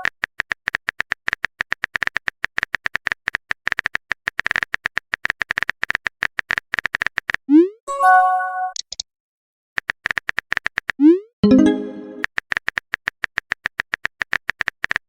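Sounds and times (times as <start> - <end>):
phone keyboard typing clicks: 8.8 - 9.0
message sent swoosh: 11.4 - 12.3.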